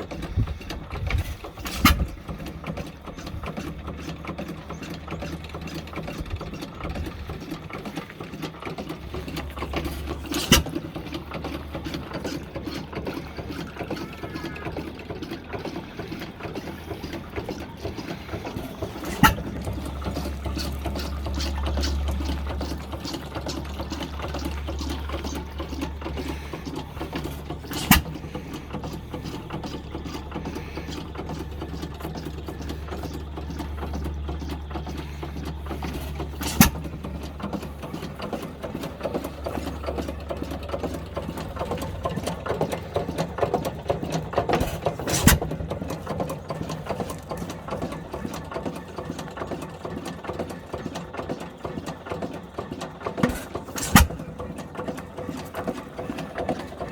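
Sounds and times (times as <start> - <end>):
stationary engine clattering: 0.0 - 56.9.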